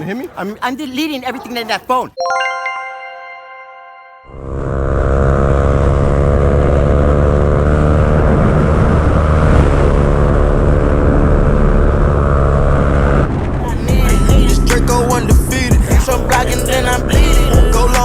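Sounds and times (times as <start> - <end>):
motorcycle engine running hard: 4.4 - 13.2.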